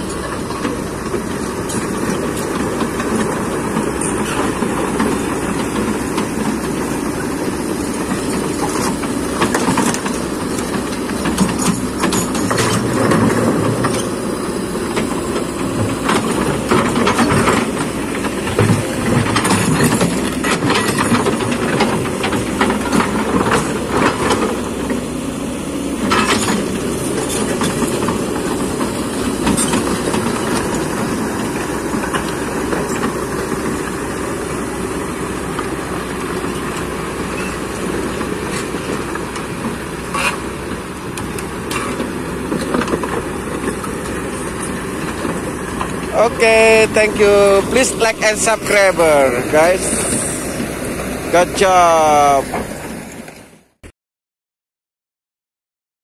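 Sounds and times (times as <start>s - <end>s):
excavator engine running: 0.0s - 53.9s
metallic clanks and knocks: 8.1s - 14.2s, 15.8s - 24.6s.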